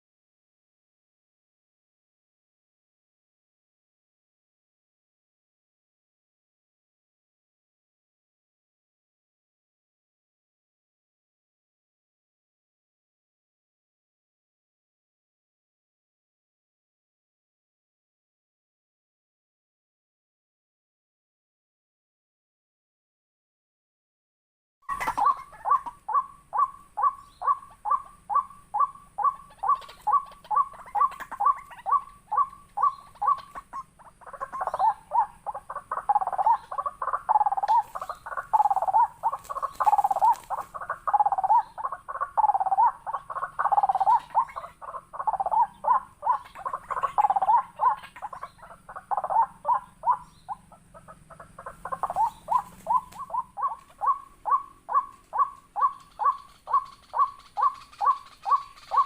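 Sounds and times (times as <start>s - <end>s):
fast regular bird calls: 24.9s - 59.0s
lower bending bird calls: 24.9s - 59.0s.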